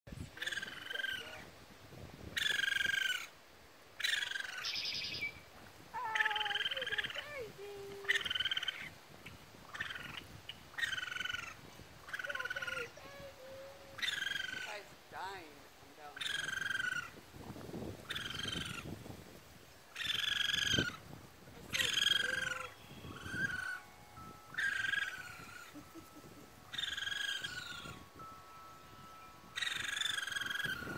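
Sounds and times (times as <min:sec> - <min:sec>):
baby raccoons trilling calls: 0:00.3 - 0:01.5, 0:02.3 - 0:03.4, 0:04.0 - 0:05.4, 0:06.0 - 0:15.4, 0:16.0 - 0:19.0, 0:19.9 - 0:28.2, 0:28.9 - 0:30.9.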